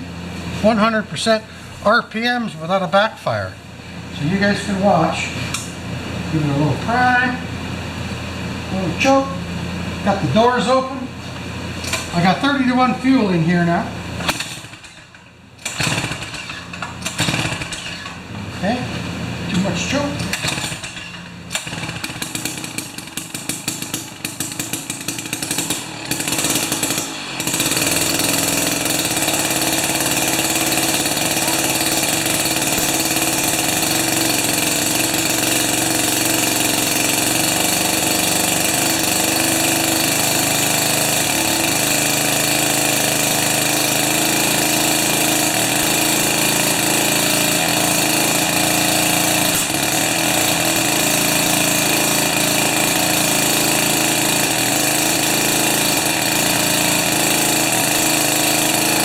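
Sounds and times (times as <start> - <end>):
two-stroke auger engine running: 11.7 - 59.0.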